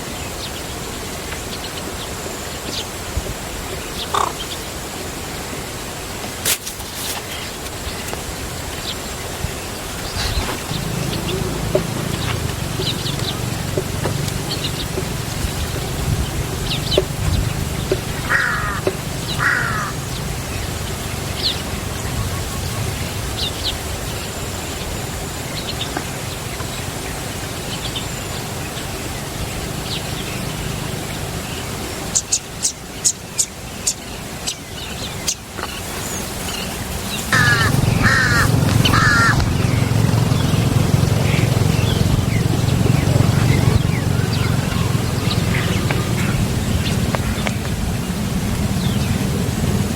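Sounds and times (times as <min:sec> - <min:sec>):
harsh bird calls: 0:09.6 - 0:24.2, 0:25.6 - 0:49.4
steady low hum: 0:10.0 - 0:23.2, 0:37.3 - 0:49.9.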